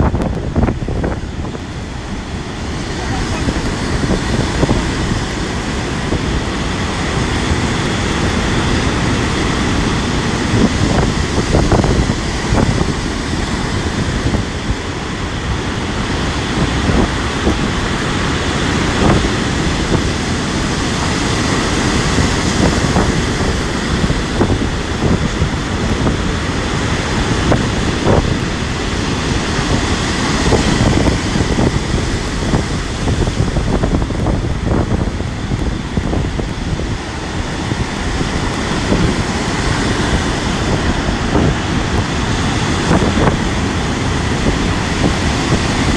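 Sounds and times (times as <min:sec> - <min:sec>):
gusty wind buffeting microphone: 0:00.0 - 0:45.9
sea surf breaking: 0:00.0 - 0:45.9.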